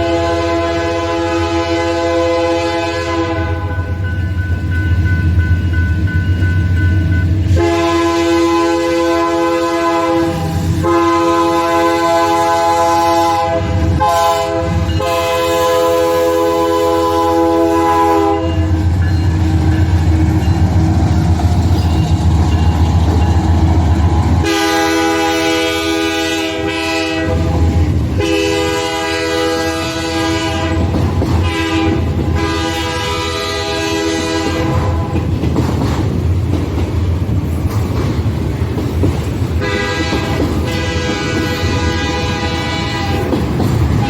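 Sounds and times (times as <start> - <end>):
locomotive horn blasts: 0.0 - 3.9, 7.5 - 18.8, 24.3 - 35.2, 39.6 - 43.4
rumble of rolling train: 0.0 - 44.0.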